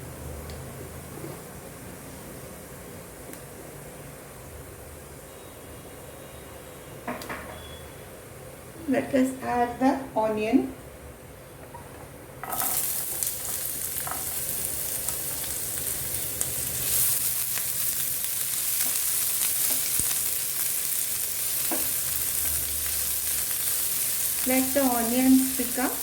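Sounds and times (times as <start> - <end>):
onion sizzling in hot oil: 12.4 - 26.0.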